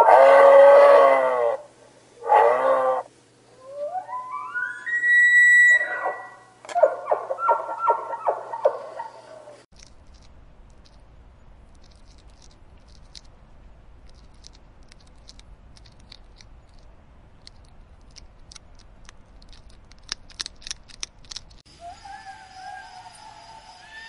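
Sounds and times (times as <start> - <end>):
low steady rumble: 9.2 - 24.0
hedgehog chewing clicks and crackles: 9.7 - 21.7.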